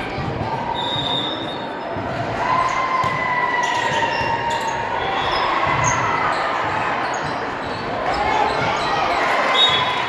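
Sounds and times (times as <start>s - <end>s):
din of players and spectators: 0.0s - 10.0s
shoes squeaking on court floor: 3.6s - 10.0s.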